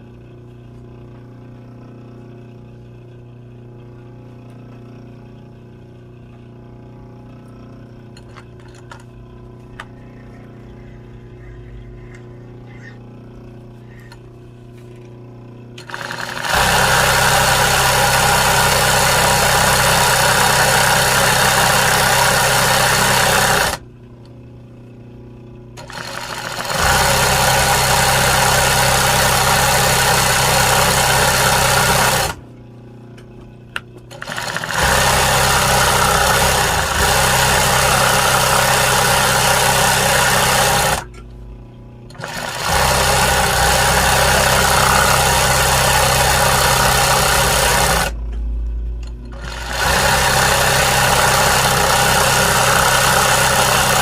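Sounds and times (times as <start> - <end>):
embroidery machine stitching: 15.8 - 23.8, 25.8 - 32.4, 34.1 - 41.1, 42.1 - 48.2, 49.1 - 54.0.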